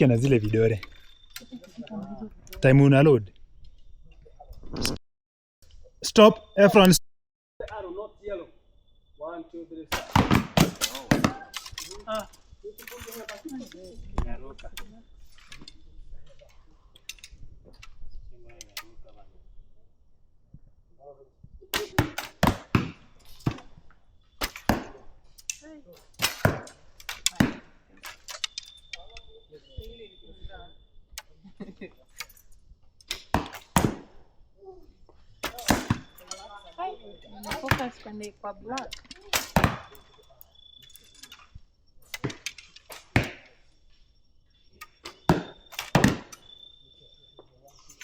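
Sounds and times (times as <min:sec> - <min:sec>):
arrows striking target: 0:09.9 - 0:11.8, 0:24.4 - 0:25.0, 0:26.2 - 0:28.6, 0:35.4 - 0:36.2, 0:44.9 - 0:46.4
arrows striking: 0:09.9 - 0:12.1, 0:21.8 - 0:23.7, 0:24.4 - 0:25.6, 0:26.2 - 0:28.6, 0:33.0 - 0:34.2, 0:35.4 - 0:36.5, 0:37.4 - 0:38.0, 0:38.8 - 0:40.0, 0:42.1 - 0:43.6, 0:44.8 - 0:46.5.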